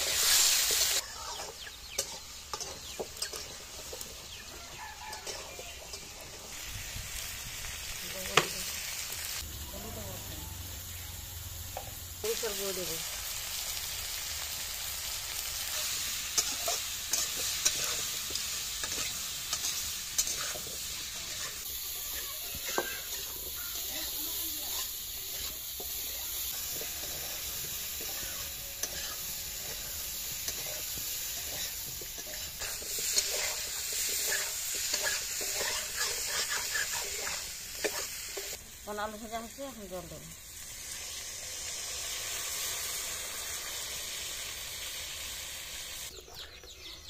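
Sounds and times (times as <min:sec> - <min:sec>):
metal spatula scraping a pan: 0:00.0 - 0:06.6, 0:15.6 - 0:38.6
potatoes sizzling in a pan: 0:00.0 - 0:46.3.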